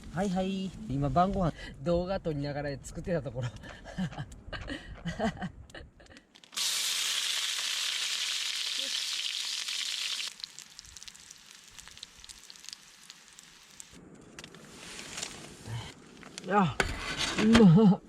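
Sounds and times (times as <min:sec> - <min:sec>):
small crackles: 0:06.0 - 0:16.5
food sizzling in a skillet: 0:06.6 - 0:14.0.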